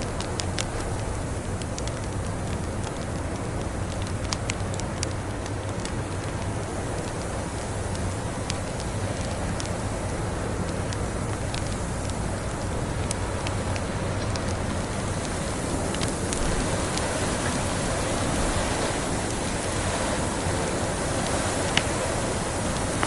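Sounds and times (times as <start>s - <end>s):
blizzard wind rushing: 0.0s - 23.0s
wood fire crackling: 0.0s - 23.0s.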